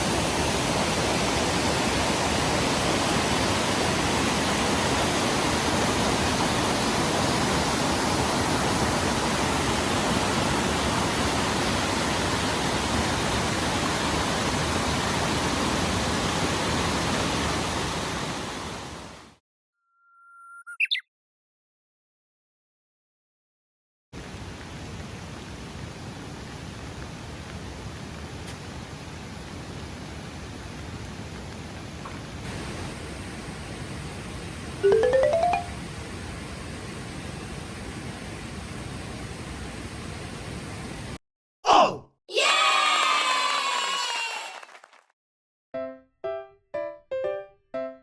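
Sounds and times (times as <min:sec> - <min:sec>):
steady rain: 0:00.0 - 0:19.0, 0:24.2 - 0:34.8
short rising chirp: 0:19.8 - 0:21.1.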